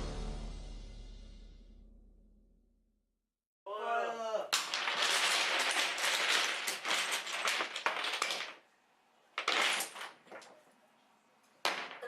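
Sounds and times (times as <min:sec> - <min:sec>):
wooden blocks clattering: 0:04.6 - 0:08.7, 0:09.3 - 0:10.7, 0:11.6 - 0:12.0.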